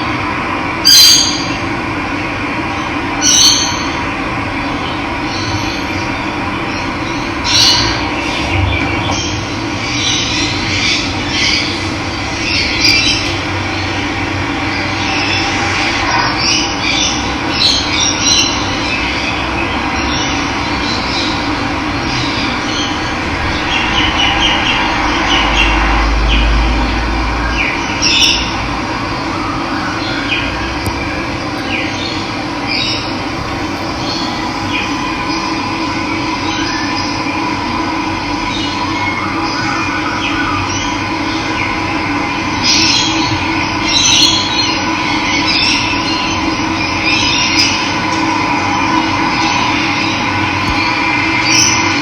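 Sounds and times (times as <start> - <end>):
low rumble: 21.3 - 29.1, 31.0 - 37.6
birds chirping: 27.5 - 37.3.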